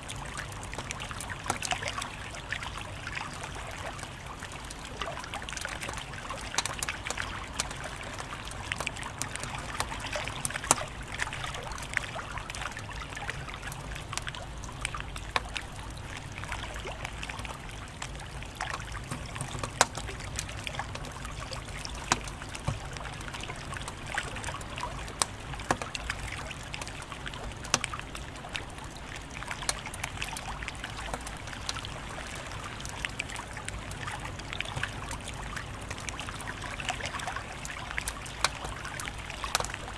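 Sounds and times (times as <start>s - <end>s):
soft steady hiss: 0.0s - 39.9s
wood fire crackling and popping: 4.1s - 11.9s, 16.8s - 31.8s.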